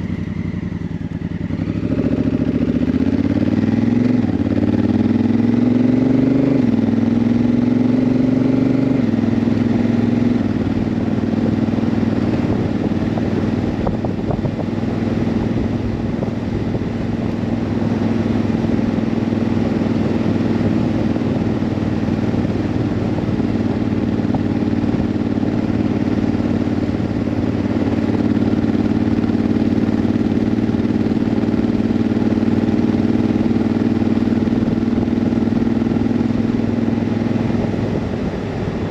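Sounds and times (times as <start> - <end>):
wind rush: 10.3 - 27.8, 37.0 - 38.9.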